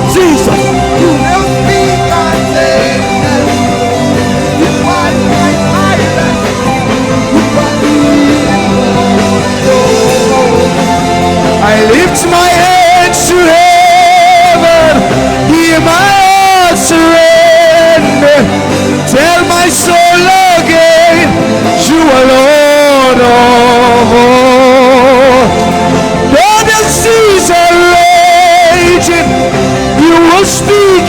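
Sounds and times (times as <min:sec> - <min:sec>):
gospel band playing: 0:00.0 - 0:31.0
person singing long wavering notes: 0:07.2 - 0:15.8.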